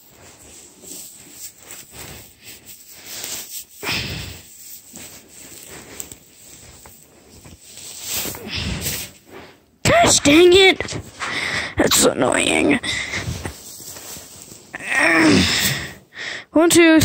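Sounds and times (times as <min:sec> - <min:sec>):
dry hay rustling and crackling: 0:00.0 - 0:09.6, 0:13.4 - 0:14.8.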